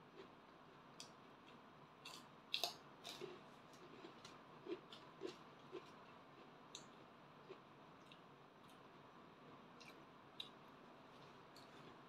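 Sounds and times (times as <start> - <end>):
person chewing crackers: 1.0 - 8.9.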